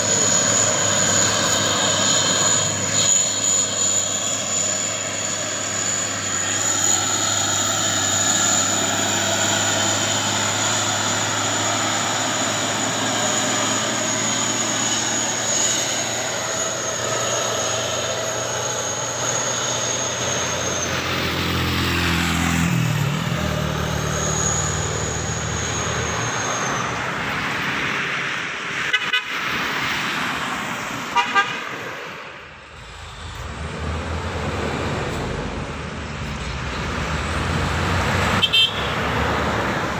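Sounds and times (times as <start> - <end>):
high steady whine: 0.0 - 21.7
heavy diesel trucks passing: 0.0 - 39.9
truck horn toots: 28.9 - 29.4, 31.1 - 31.7, 38.3 - 39.1.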